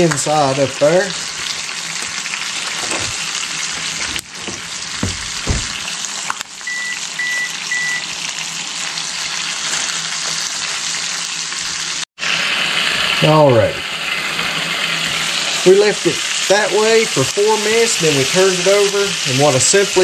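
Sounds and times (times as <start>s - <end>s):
chicken sizzling in a skillet: 0.0s - 20.0s
low knocks: 4.0s - 5.9s
short electronic beeps: 6.7s - 8.0s.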